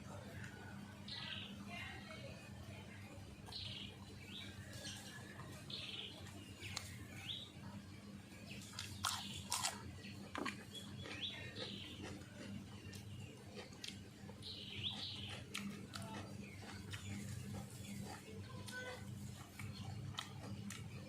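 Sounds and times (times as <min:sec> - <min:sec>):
small birds chirping: 0:00.0 - 0:21.0
steady low hum: 0:00.0 - 0:21.0
person chewing and smacking: 0:08.6 - 0:21.0.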